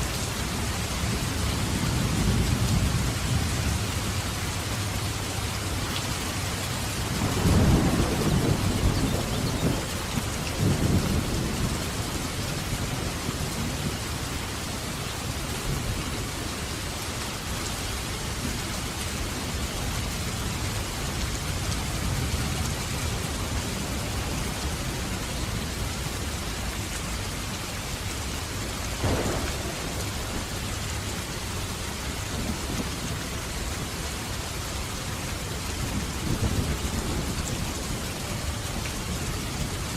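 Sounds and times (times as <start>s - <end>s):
heavy rain falling: 0.0s - 39.9s
rolling thunder rumble: 7.0s - 14.2s, 28.9s - 33.8s, 35.4s - 38.6s
thunderclap: 29.0s - 30.6s.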